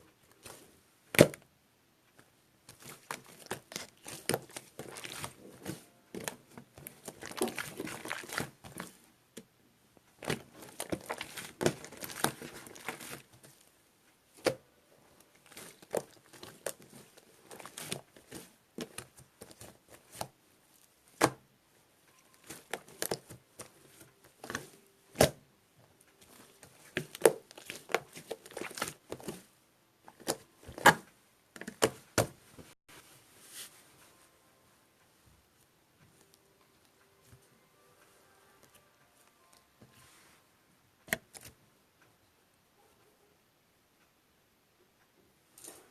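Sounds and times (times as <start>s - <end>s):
slime squished by hand: 2.7s - 8.9s.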